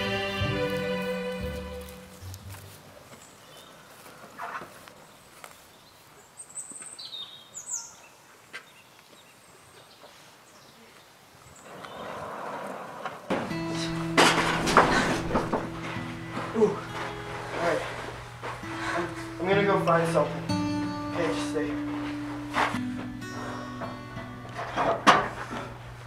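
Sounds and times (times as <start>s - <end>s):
faint footfalls: 0.0s - 7.0s, 13.3s - 23.6s
barn door scraping: 11.7s - 20.3s, 24.5s - 25.8s.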